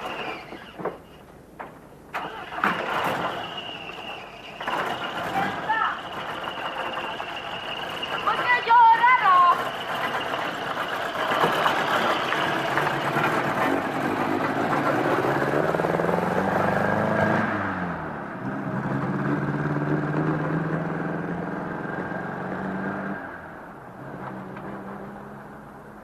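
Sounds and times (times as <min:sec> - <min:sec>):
vehicle engine running: 0:04.4 - 0:17.2.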